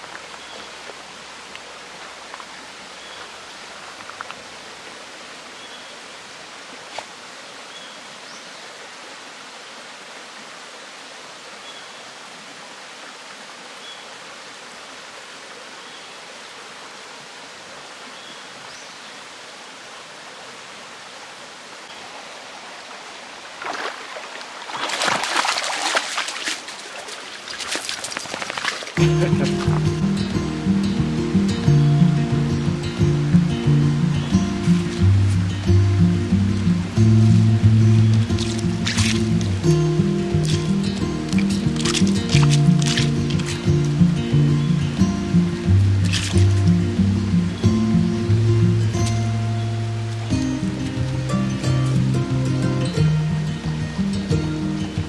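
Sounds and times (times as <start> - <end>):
stream running over rocks: 0.0 - 55.0
splashing in water: 23.4 - 30.2, 37.3 - 44.5, 45.6 - 47.1
music: 29.0 - 55.0.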